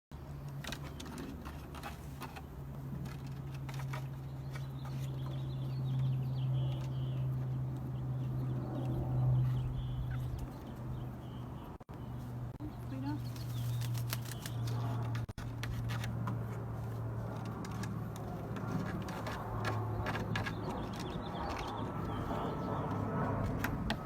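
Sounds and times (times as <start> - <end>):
bird chirping: 3.9 - 15.2, 19.2 - 23.0.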